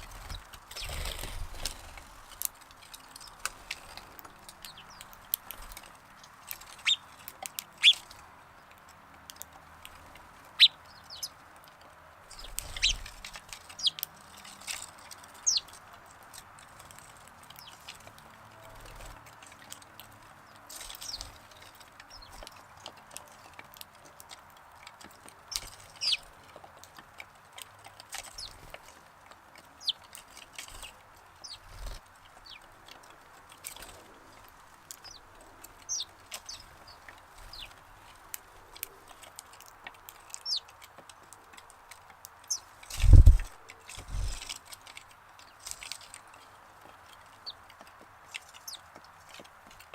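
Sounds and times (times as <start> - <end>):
sparrows chirping: 0.0 - 41.6, 42.3 - 49.9
faint outdoor hiss: 0.0 - 49.9.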